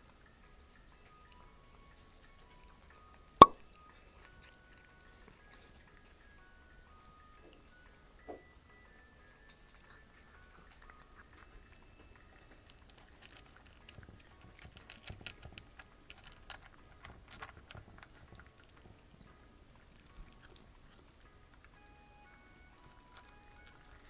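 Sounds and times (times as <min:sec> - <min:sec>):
cat chewing: 0:03.8 - 0:07.9, 0:09.4 - 0:24.0.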